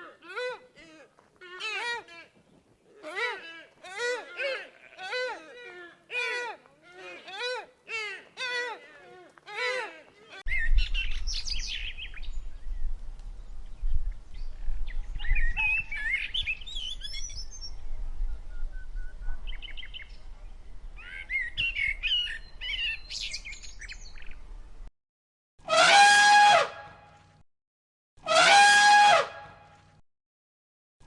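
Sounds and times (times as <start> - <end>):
birds chirping and warbling: 10.5 - 24.9
steady-pitched bird call: 14.9 - 17.9, 21.0 - 24.3.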